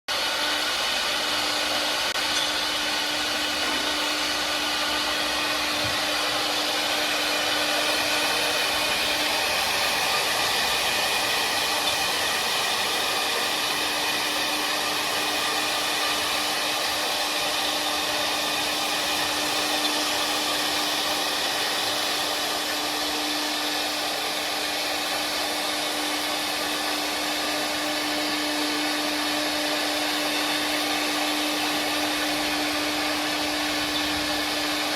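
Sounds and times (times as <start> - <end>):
wood cutting noise: 0.1 - 34.9
spindles whining: 0.3 - 34.9.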